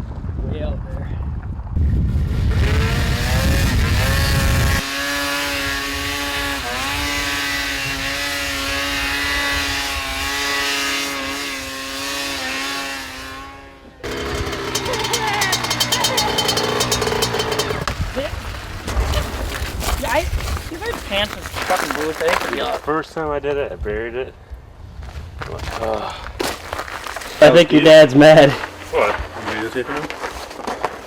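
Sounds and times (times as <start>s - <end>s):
two-stroke engine revving: 2.4s - 17.9s.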